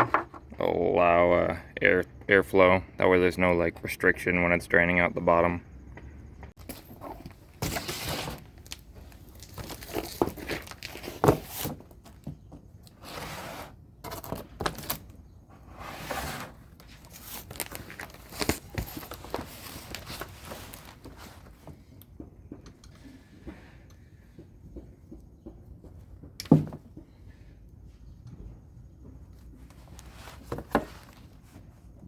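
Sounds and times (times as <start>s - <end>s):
rustling and scraping: 6.5s - 22.0s, 26.8s - 32.0s.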